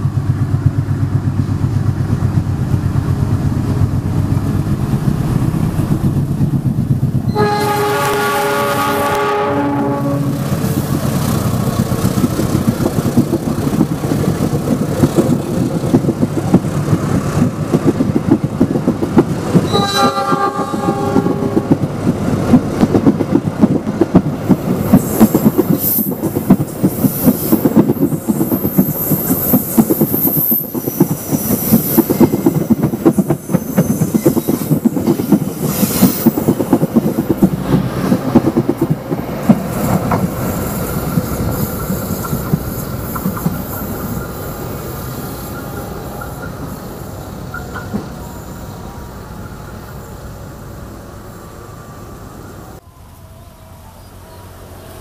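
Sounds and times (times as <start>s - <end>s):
train wheels clattering over rail joints: 10.4s - 48.2s
train wheel squeal: 19.5s - 21.7s, 24.7s - 38.4s, 39.7s - 50.4s.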